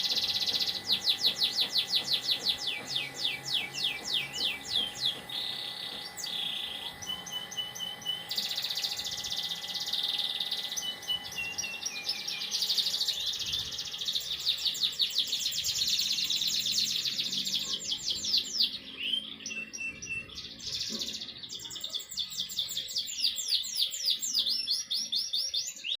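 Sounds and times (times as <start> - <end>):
canary singing trills: 0.0 - 26.0.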